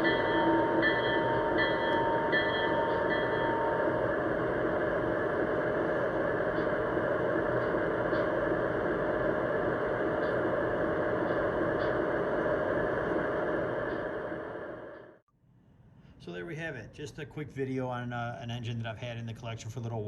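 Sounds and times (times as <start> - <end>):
model locomotive hum and rumble: 0.0 - 15.2.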